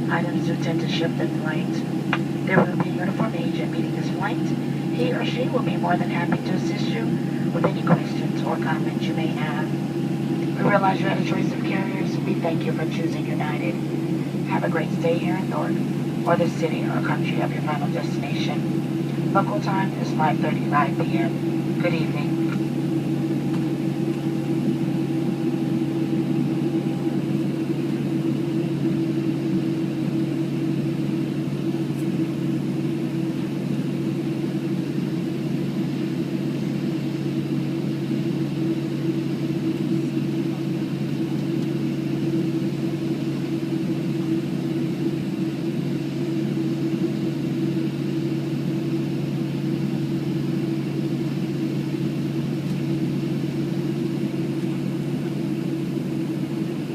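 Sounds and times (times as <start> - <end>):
low droning tones: 0.0 - 33.5
airplane cabin engine hum: 0.0 - 56.9.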